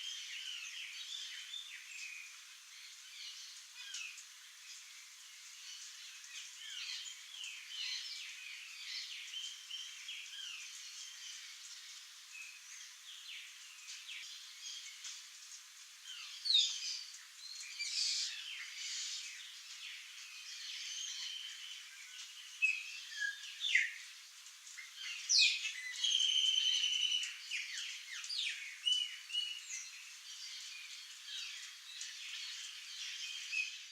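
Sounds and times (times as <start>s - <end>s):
birds chirping and trilling: 16.1s - 24.1s, 24.7s - 33.9s.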